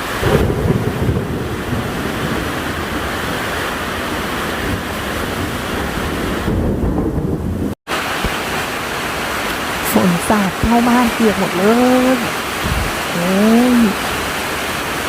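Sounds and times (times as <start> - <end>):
driving rain: 0.0 - 15.0
strong storm wind: 0.0 - 15.0
wind buffeting microphone: 12.5 - 13.4.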